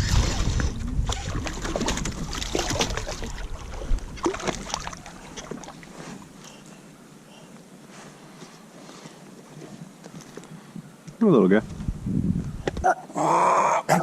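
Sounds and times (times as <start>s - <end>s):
water splashing around kayak: 0.0s - 6.6s.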